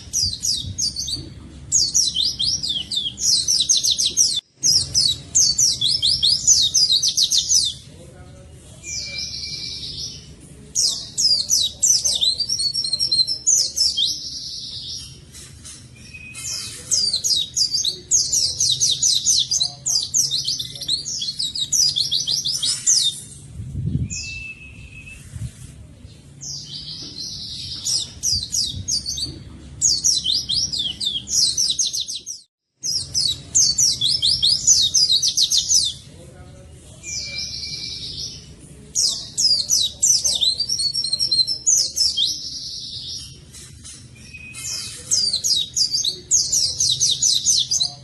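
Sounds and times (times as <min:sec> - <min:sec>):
bird rapid high chirping: 0:00.0 - 0:07.9, 0:16.0 - 0:23.4, 0:26.4 - 0:36.1.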